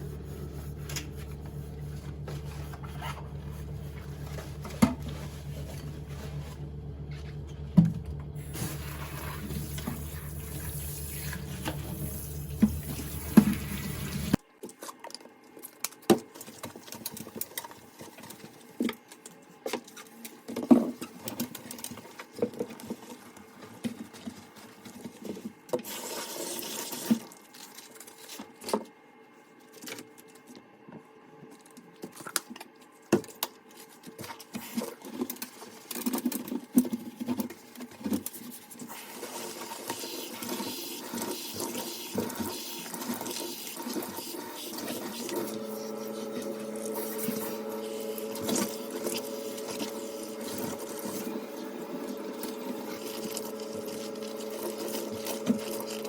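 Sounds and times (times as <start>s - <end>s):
water running from tap: 8.4s - 14.4s, 38.9s - 56.0s.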